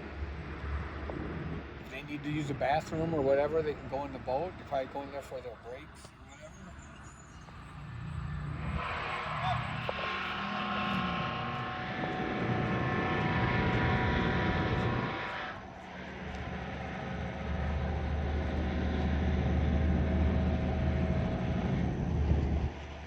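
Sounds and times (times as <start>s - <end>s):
engine hum: 0.0s - 23.0s
heavy low engine rumble: 0.0s - 23.0s.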